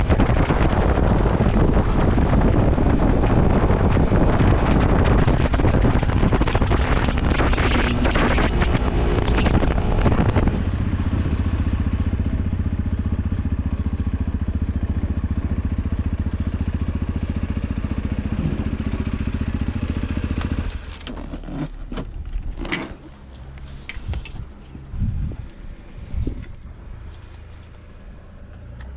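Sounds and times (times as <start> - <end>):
wind on microphone: 0.0 - 17.2, 23.9 - 26.8
motorcycle engine running: 0.0 - 28.1.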